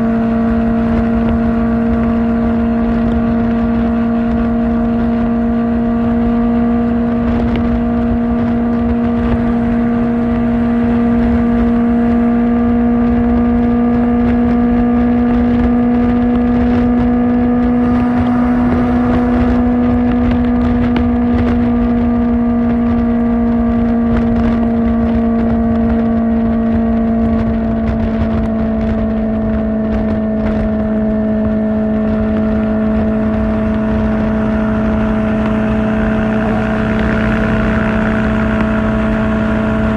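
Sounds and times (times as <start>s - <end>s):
motorcycle engine cruising: 0.0s - 39.9s
wind rushing: 16.3s - 21.4s, 31.3s - 39.9s.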